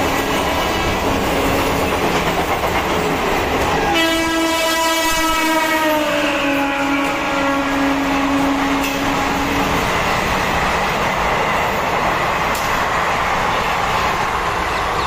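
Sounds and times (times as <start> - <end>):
wheels rushing on rail: 0.0 - 15.0
locomotive horn: 3.8 - 9.5.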